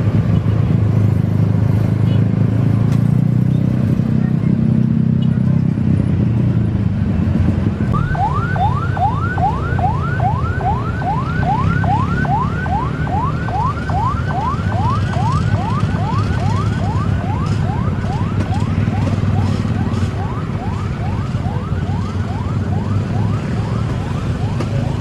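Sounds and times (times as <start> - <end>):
electronic siren yelping: 7.9 - 25.0.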